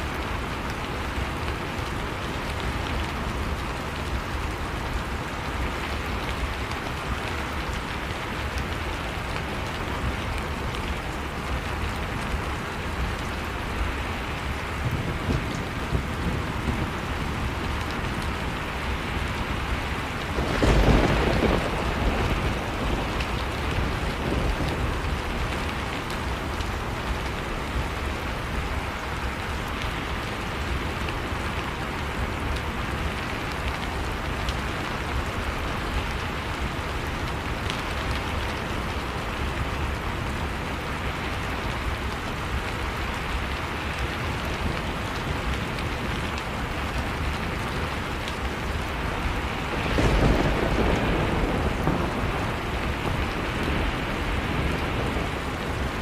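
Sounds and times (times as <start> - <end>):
heavy rain falling: 0.0 - 56.0
thunder clap rumbling: 19.5 - 26.6, 48.7 - 56.0.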